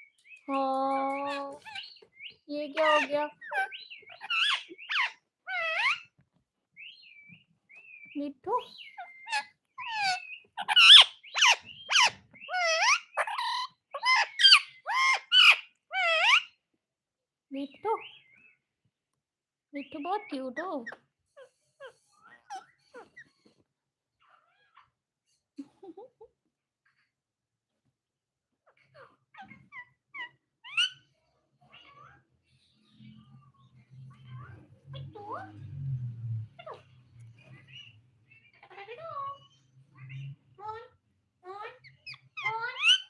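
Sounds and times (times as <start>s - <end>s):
parrot squawking: 1.3s - 6.1s, 8.7s - 16.6s, 28.7s - 32.3s, 36.6s - 43.0s.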